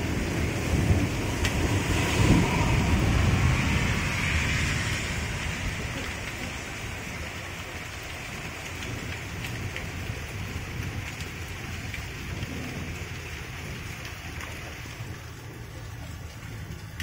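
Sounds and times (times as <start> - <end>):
low rumble: 0.0 - 17.0
steady rain falling: 0.0 - 17.0
raindrop ticks: 5.9 - 17.0.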